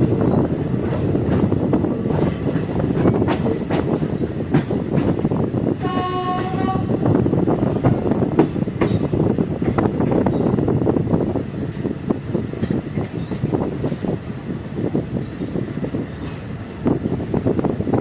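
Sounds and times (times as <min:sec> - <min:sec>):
train rumbling on track: 0:00.0 - 0:18.0
wheels clattering on rails: 0:00.0 - 0:18.0
train horn: 0:05.8 - 0:07.2.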